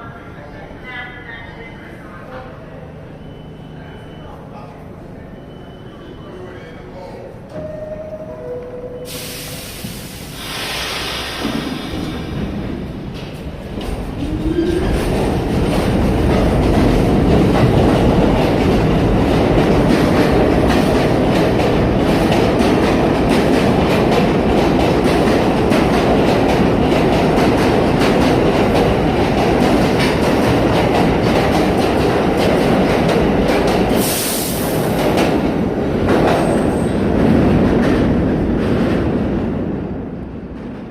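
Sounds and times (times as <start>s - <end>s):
subway train wheels clattering: 0.0s - 40.9s
high hiss: 9.1s - 12.7s.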